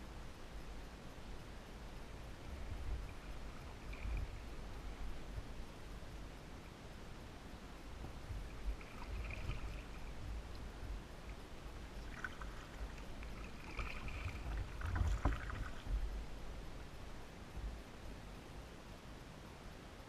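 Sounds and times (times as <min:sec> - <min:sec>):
low steady rumble: 0:00.0 - 0:20.0
kayak paddle splashing water: 0:08.4 - 0:16.3.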